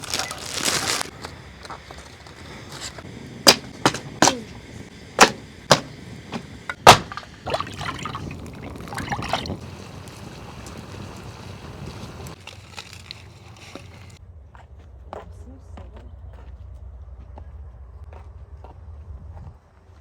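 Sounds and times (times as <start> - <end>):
sharp knocks or snaps: 5.2 - 7.3.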